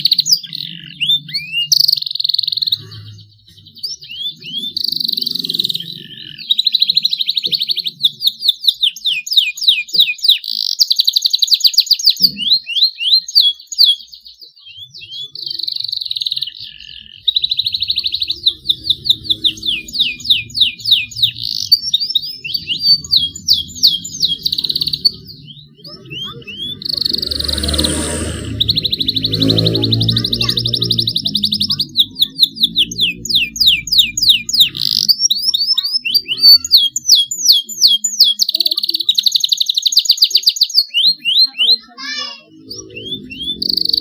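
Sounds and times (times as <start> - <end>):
canary singing trills: 0.0 - 44.0
rough low-toned sound: 17.4 - 35.0.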